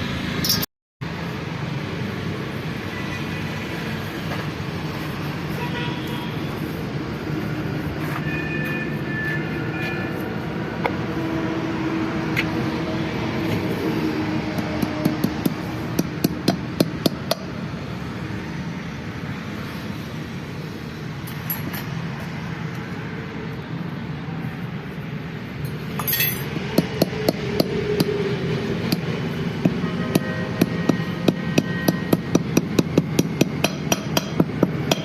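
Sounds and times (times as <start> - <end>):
hammer striking metal: 0.4 - 0.7, 28.9 - 35.0.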